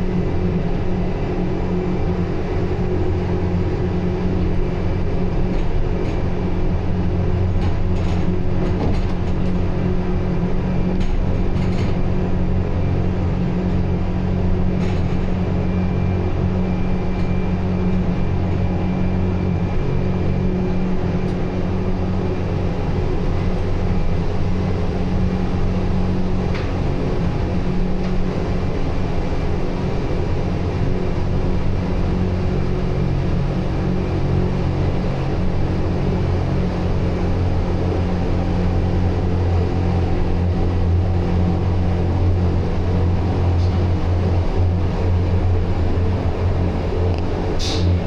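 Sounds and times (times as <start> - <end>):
train hum and rumble: 0.0 - 48.0.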